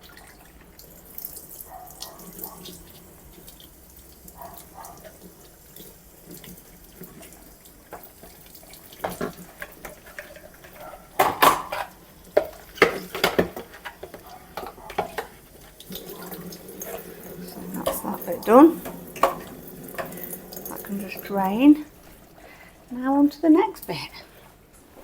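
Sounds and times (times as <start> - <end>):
water sloshing and splashing: 0.0 - 23.0
plastic knocking against sink: 7.9 - 20.8.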